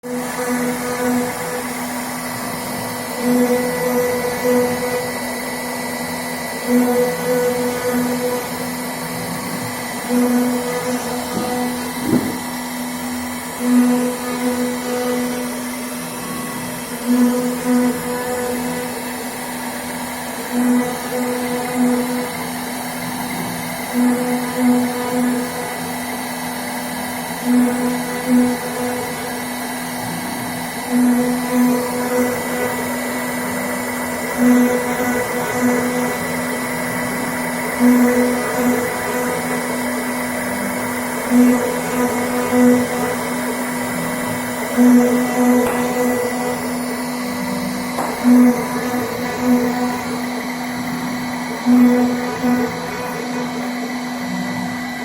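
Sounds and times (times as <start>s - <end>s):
cnc router spindle carving board: 0.0s - 55.0s.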